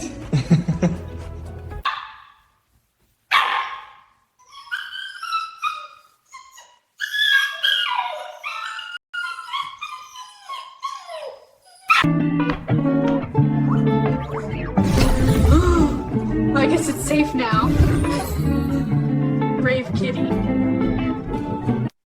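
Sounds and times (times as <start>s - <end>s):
dog barking: 1.8s - 2.5s, 3.3s - 4.1s
dog whining and yipping: 3.4s - 12.1s.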